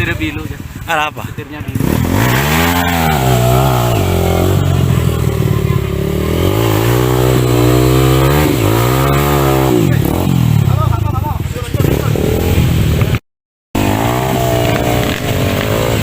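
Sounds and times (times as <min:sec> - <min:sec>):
dirt bike engine revving: 0:01.6 - 0:13.2, 0:13.8 - 0:16.0.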